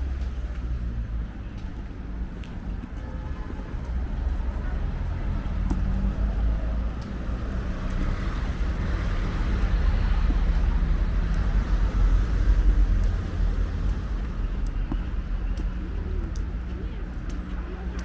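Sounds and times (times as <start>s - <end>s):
low traffic rumble: 0.0s - 18.0s
motor vehicle passing: 3.8s - 17.6s.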